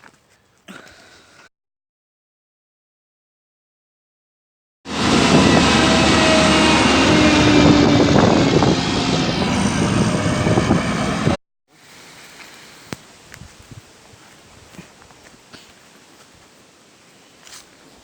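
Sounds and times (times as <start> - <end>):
car road and wind noise: 4.9 - 11.4.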